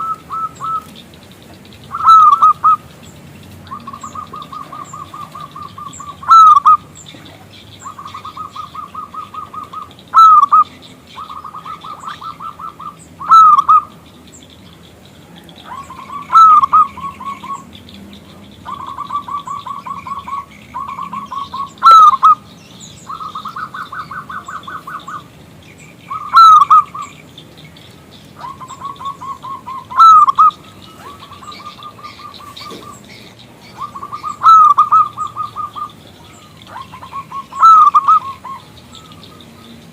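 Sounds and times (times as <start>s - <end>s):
dove cooing: 0.0s - 1.2s, 1.8s - 14.0s, 15.1s - 25.3s, 26.1s - 27.3s, 28.3s - 39.9s.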